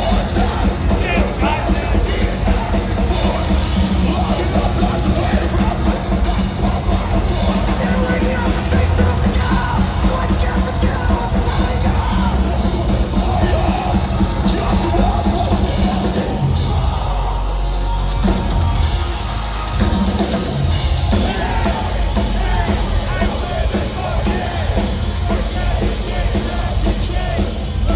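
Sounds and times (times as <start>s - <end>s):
heavy metal band playing live: 0.0s - 27.9s
low bass: 0.0s - 27.9s
pounding drums: 0.0s - 27.9s.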